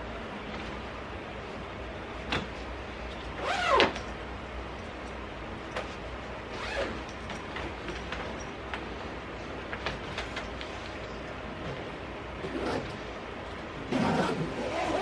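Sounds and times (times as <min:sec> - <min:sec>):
zipper pulled: 0:13.9 - 0:15.0.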